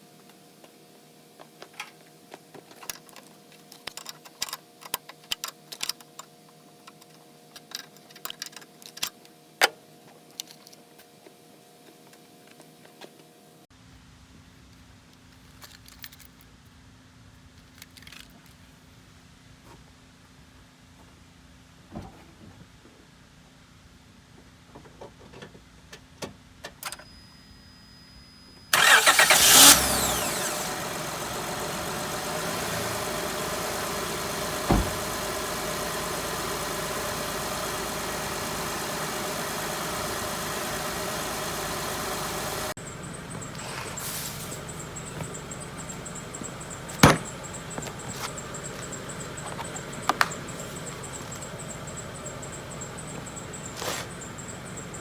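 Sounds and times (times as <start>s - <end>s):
car engine cranking: 28.8s - 55.0s
car engine idling: 28.8s - 55.0s.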